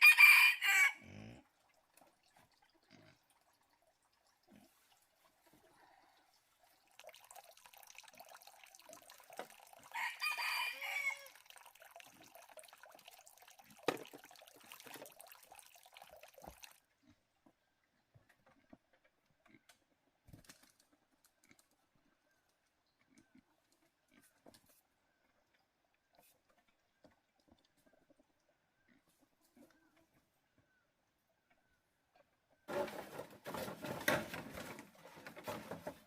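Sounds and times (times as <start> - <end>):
rooster crowing: 0.0 - 1.0, 9.9 - 11.4.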